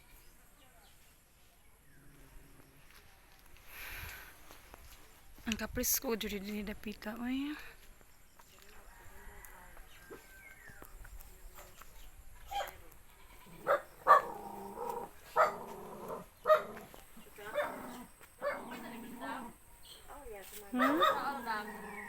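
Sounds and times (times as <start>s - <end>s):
dog barking: 12.5s - 12.8s, 13.6s - 16.9s, 17.5s - 19.4s, 20.8s - 22.0s.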